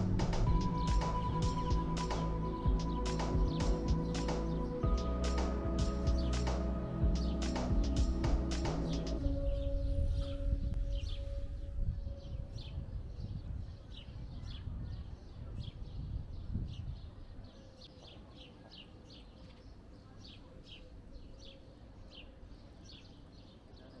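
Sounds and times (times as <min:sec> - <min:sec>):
low outdoor rumble: 0:00.0 - 0:13.7.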